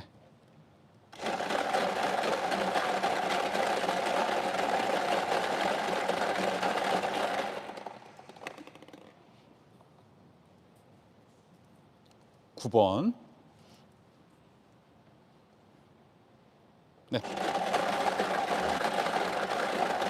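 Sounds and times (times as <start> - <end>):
prize-draw machine clatter: 1.2 - 9.0, 17.2 - 20.0.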